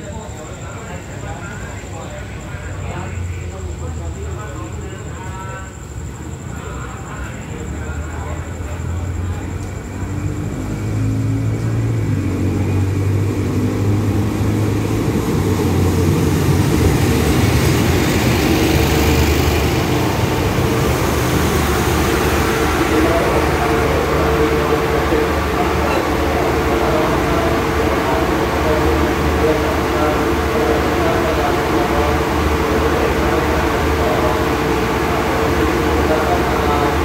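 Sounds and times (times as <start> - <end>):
train coaches rolling slowly: 0.0 - 37.0
locomotive engine hum: 8.6 - 37.0.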